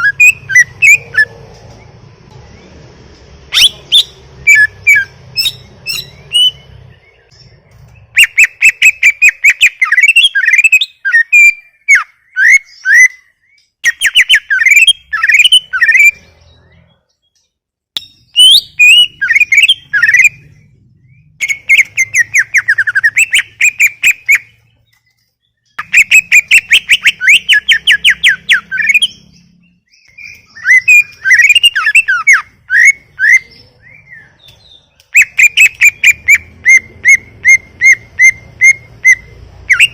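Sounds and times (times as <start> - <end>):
bird singing rapid sweeping notes: 0.0 - 39.9.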